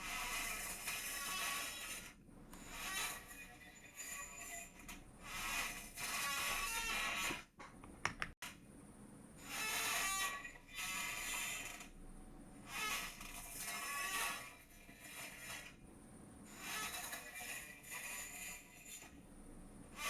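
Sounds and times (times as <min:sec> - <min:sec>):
chair creaking and squeaking: 0:00.0 - 0:07.5, 0:12.7 - 0:15.7, 0:16.5 - 0:19.1
sharp clicks: 0:07.8 - 0:08.4.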